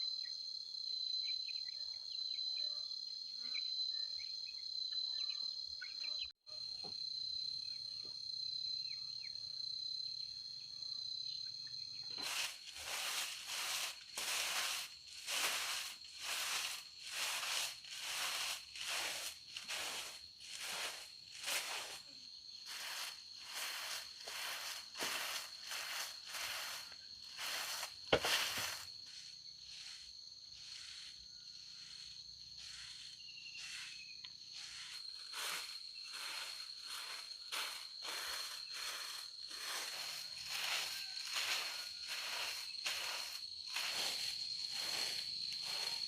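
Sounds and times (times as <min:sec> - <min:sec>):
high insect buzz: 0:05.2 - 0:46.0
rustling footsteps: 0:12.1 - 0:30.0, 0:32.6 - 0:46.0.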